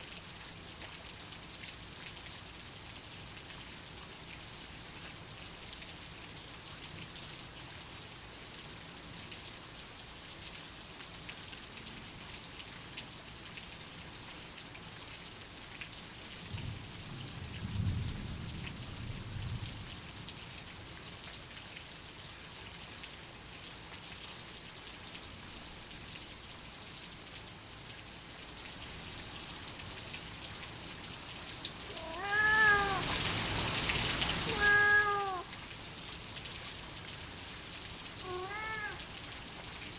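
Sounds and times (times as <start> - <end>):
low rumble of thunder: 16.5 - 20.2
rain hissing: 28.8 - 39.9
cat meowing: 31.8 - 33.3, 34.4 - 35.5, 38.2 - 39.1.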